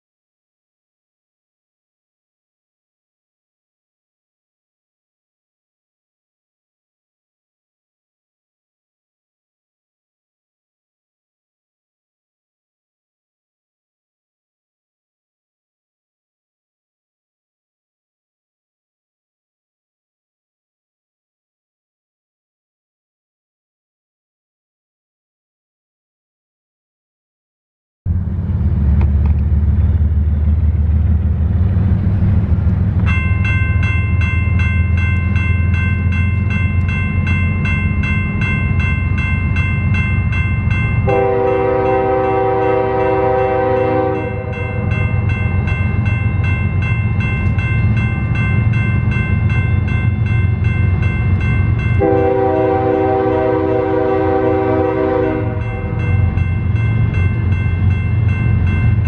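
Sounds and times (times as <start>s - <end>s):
diesel locomotive rumble: 28.1s - 59.0s
locomotive horn blasts: 41.0s - 45.3s, 52.0s - 56.4s.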